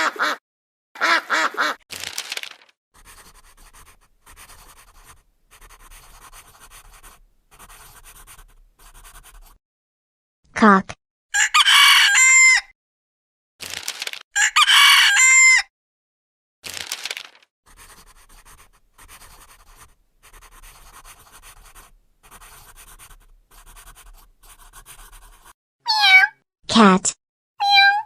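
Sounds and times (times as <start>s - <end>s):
rooster crowing: 11.4s - 12.7s, 14.4s - 15.7s.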